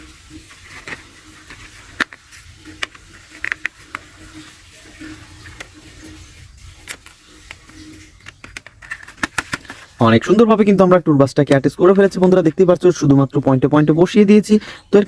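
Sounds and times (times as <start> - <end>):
plastic clicks and knocks: 8.2 - 9.8.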